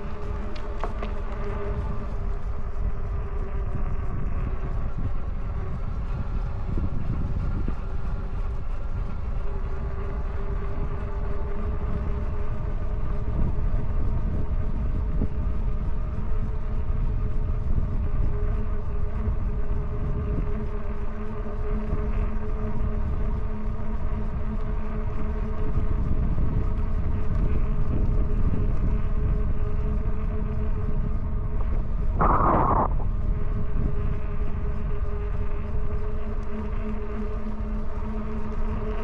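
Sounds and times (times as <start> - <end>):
wind rumble on microphone: 0.0 - 39.0
electric bike motor whining: 21.8 - 39.0.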